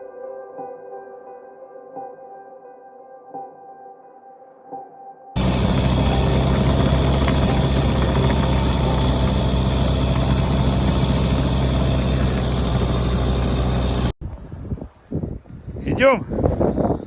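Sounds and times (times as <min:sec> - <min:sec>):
diesel engine droning: 0:05.4 - 0:14.2.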